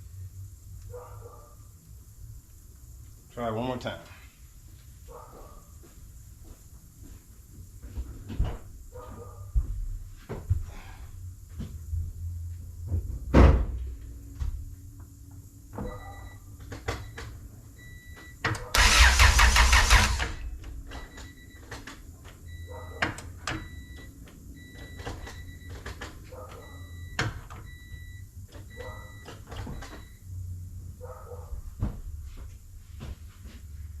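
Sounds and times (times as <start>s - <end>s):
engine starter cranking: 18.5s - 21.9s.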